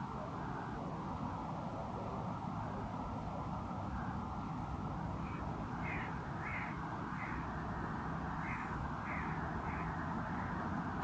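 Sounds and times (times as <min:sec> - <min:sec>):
bird calls: 0:05.2 - 0:10.7.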